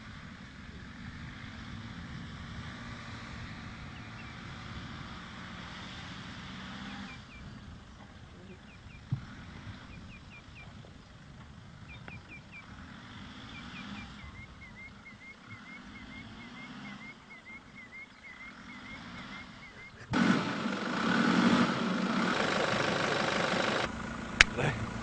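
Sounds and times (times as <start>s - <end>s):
car engine humming: 0.0s - 25.0s
small birds chirping: 0.7s - 20.2s.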